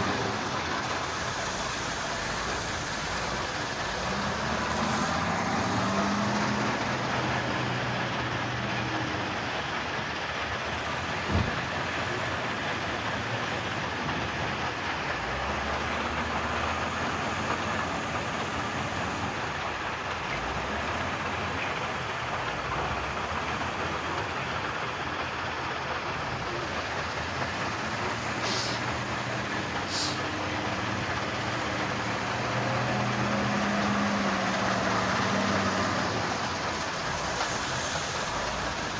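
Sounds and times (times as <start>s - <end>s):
diesel machinery running: 0.0s - 38.9s
short air hisses: 28.4s - 28.9s, 29.9s - 30.2s.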